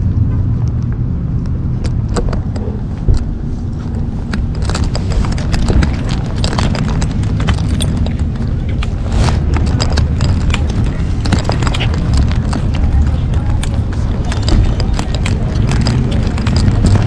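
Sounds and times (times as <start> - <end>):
low rumble of moving camera: 0.0 - 17.0
metallic clinks and clicks: 4.3 - 17.0.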